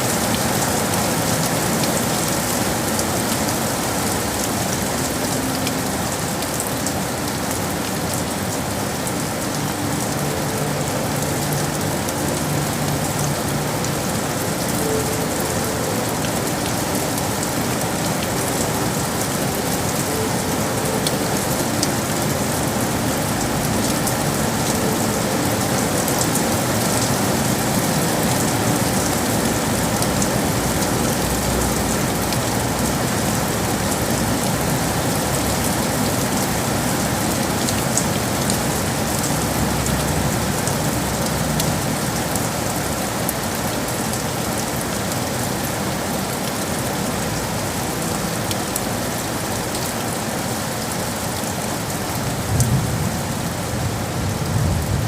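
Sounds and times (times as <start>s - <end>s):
rain on hard surfaces: 0.0s - 55.0s.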